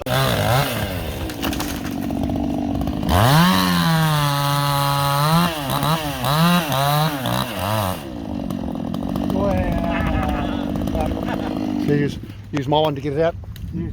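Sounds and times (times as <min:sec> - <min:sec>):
chainsaw revving: 0:00.0 - 0:12.5.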